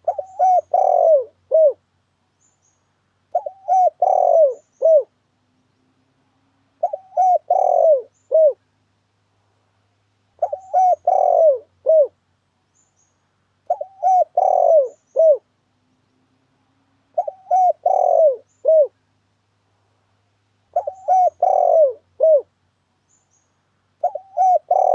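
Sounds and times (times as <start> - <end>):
dove cooing: 0.0 - 1.8, 3.3 - 5.2, 6.8 - 8.6, 10.4 - 12.2, 13.7 - 15.5, 17.1 - 19.0, 20.7 - 22.5, 24.0 - 24.9.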